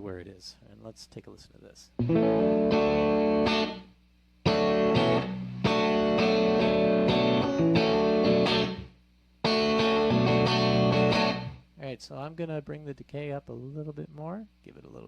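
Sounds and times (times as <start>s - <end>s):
electric guitar chords with reverb: 2.0s - 11.6s.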